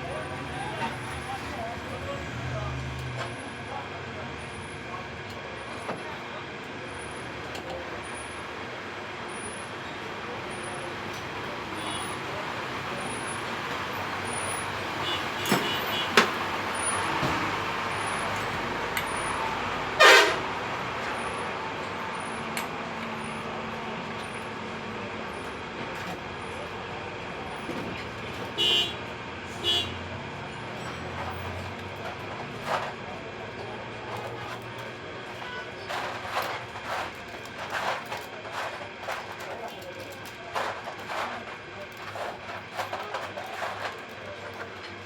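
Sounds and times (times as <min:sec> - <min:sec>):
road traffic passing: 0:00.0 - 0:39.2
vehicle horns: 0:11.8 - 0:12.2, 0:14.3 - 0:17.0, 0:19.9 - 0:20.6, 0:28.5 - 0:30.1.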